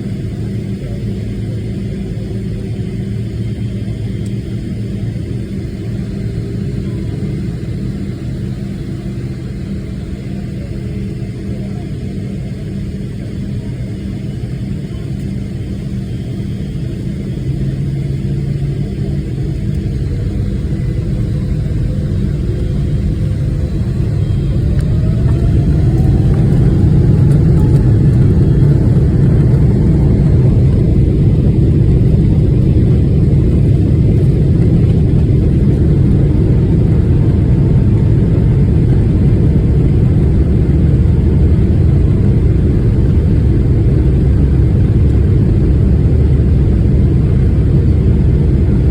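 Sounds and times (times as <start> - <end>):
jet engines deep rumble: 0.0 - 48.9
faint rising jet whine: 18.4 - 48.5.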